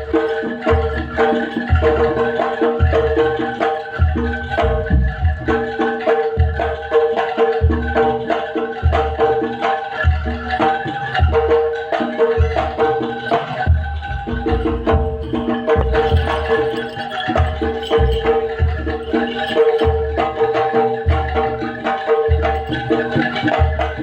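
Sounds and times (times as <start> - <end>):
hand drum strokes: 0.0 - 24.0
ringing metal percussion: 0.0 - 24.0
deep bass drum hits: 15.8 - 16.4.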